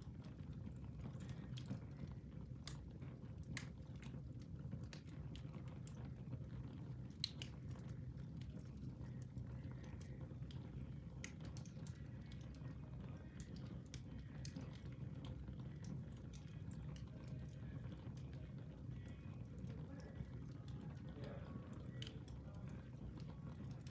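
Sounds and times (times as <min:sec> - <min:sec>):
low rumble of flames: 0:00.0 - 0:23.9
wood fire crackling: 0:00.0 - 0:23.9.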